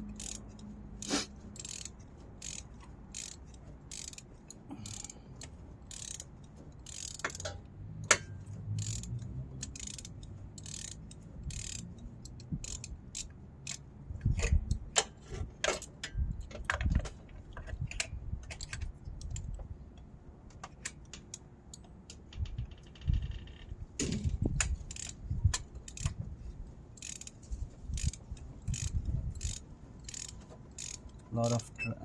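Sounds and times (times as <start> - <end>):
socket ratchet clicking: 0.0 - 16.9, 17.8 - 19.6, 24.5 - 26.2, 26.9 - 31.8.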